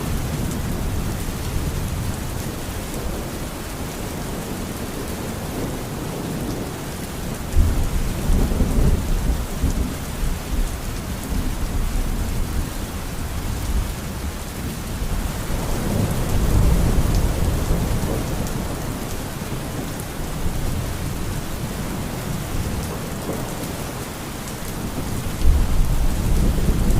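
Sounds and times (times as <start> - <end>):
steady rain: 0.0 - 26.9
low thunder rolling: 24.9 - 26.9.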